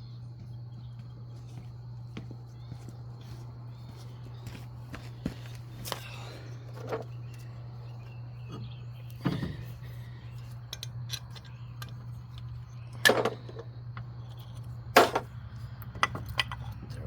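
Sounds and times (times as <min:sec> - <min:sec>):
steady low hum: 0:00.0 - 0:17.0
metal tools clanking: 0:16.0 - 0:17.0.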